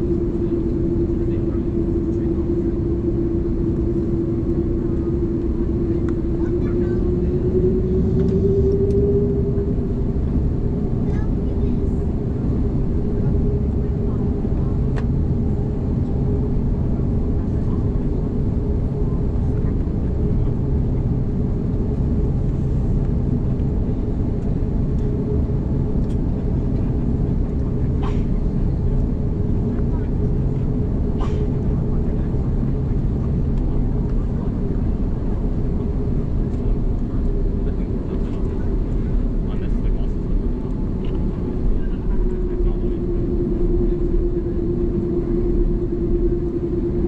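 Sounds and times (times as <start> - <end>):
droning hum: 0.0 - 47.0
jet engine rumble in cabin: 0.0 - 47.0.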